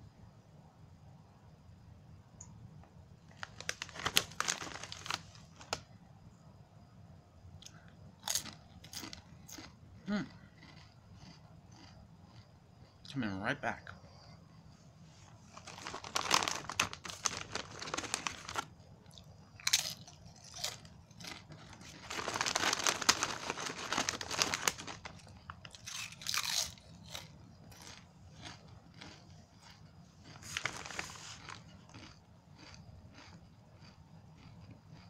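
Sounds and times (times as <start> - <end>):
crunching tortilla chips: 3.3 - 5.9, 7.6 - 12.5, 15.3 - 35.0.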